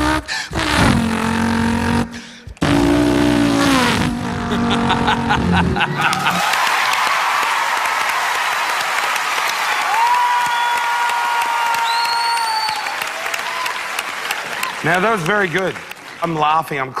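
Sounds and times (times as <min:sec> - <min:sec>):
man imitating car engine: 0:00.0 - 0:06.4
audience applause: 0:05.1 - 0:17.0.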